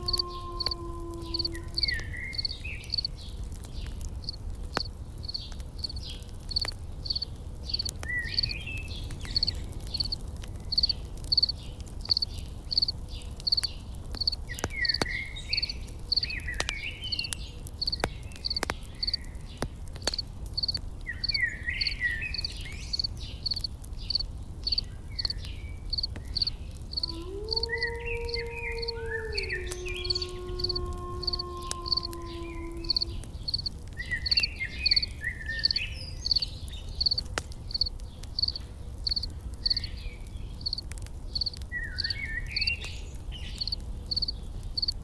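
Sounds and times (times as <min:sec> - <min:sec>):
insect chirping: 0:00.0 - 0:03.1, 0:04.7 - 0:08.5, 0:09.4 - 0:16.3, 0:17.8 - 0:19.2, 0:20.6 - 0:25.3, 0:25.9 - 0:39.9, 0:40.6 - 0:40.8, 0:41.4 - 0:42.1, 0:43.6 - 0:44.9
campfire crackling: 0:00.0 - 0:45.0
bird chirps: 0:32.0 - 0:40.0.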